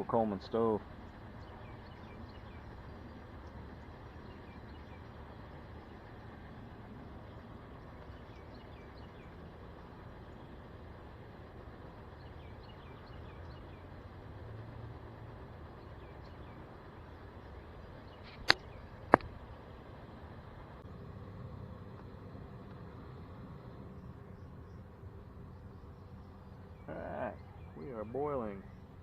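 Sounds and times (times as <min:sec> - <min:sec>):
low background rumble: 0:00.0 - 0:29.0
faint bird chirps: 0:01.0 - 0:10.8, 0:11.8 - 0:14.1, 0:23.9 - 0:29.0
sharp loud click: 0:18.3 - 0:19.3.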